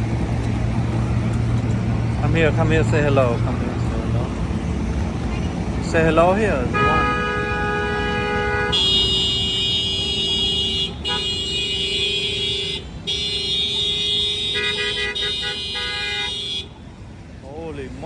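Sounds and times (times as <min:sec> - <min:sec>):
car horn long blasts: 0:06.5 - 0:16.8
car horn short toots: 0:06.7 - 0:16.7.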